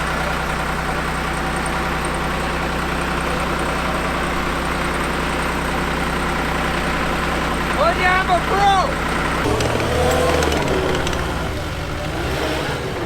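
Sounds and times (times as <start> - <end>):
diesel engine running steadily: 0.0 - 13.0.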